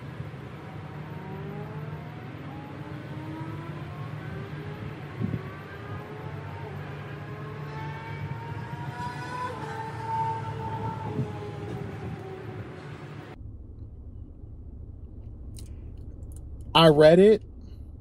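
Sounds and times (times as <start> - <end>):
car engine accelerating through gears: 0.0 - 16.8
steady low hum: 10.3 - 18.0.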